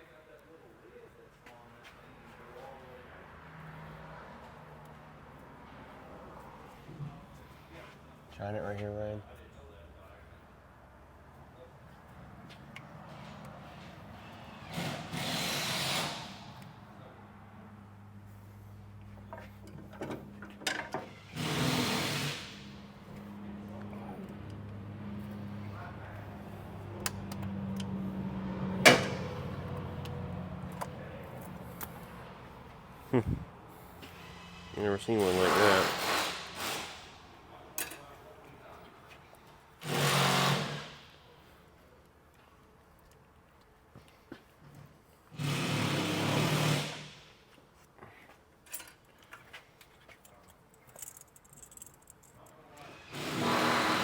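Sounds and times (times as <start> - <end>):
metal tools clinking: 50.2 - 52.6.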